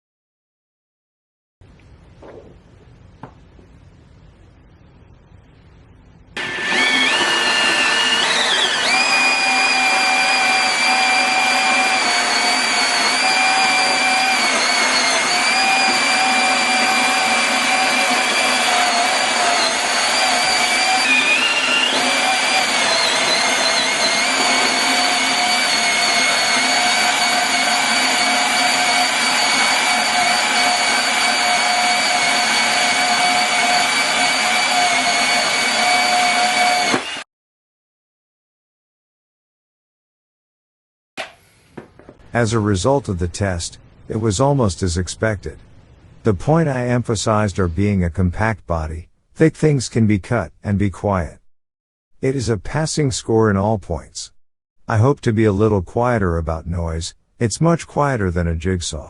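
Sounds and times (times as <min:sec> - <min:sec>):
band saw cutting metal: 0:06.4 - 0:37.2.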